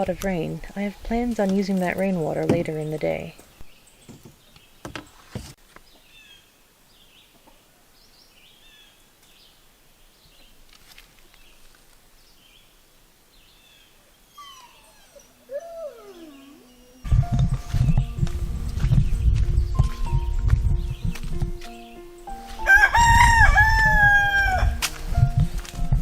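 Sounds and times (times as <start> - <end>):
faint birds chirping: 0.0 - 18.2.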